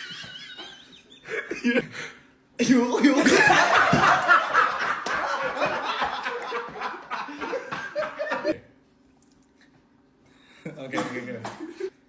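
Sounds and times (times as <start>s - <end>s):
people laughing: 0.0s - 1.8s, 3.0s - 8.6s.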